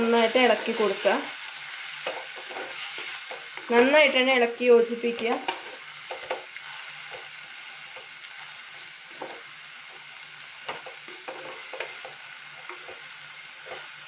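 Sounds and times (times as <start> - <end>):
vegetables sizzling in oil: 0.0 - 14.0
wooden spatula scraping pot: 10.7 - 14.0.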